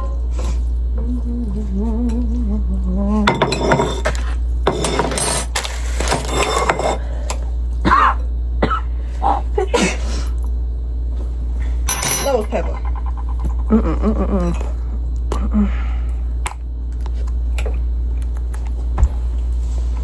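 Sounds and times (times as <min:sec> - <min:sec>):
steady low hum: 0:00.0 - 0:20.0
cutlery and dishes clinking: 0:03.3 - 0:07.0.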